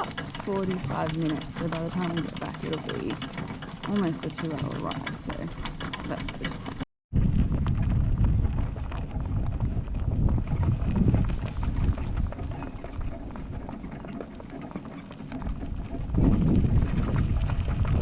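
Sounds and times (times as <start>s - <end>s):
hooves clip-clopping: 0.0s - 6.8s, 7.6s - 18.0s
steady low rumble: 7.1s - 13.9s, 15.4s - 18.0s.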